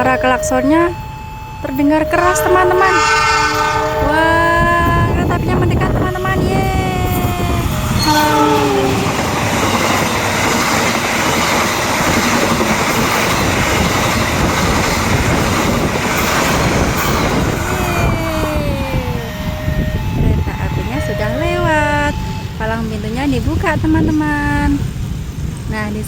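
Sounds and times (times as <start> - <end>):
train wheels rumbling on rails: 1.8 - 26.0
train horn: 2.1 - 10.6
falling tone: 2.2 - 14.5, 16.7 - 23.0.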